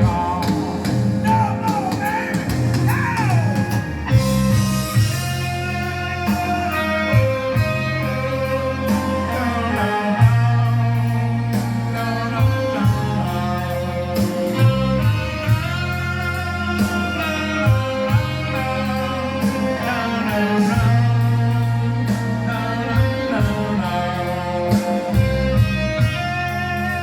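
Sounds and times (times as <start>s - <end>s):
bass and drums: 0.0s - 27.0s
electric guitar lead: 0.0s - 27.0s.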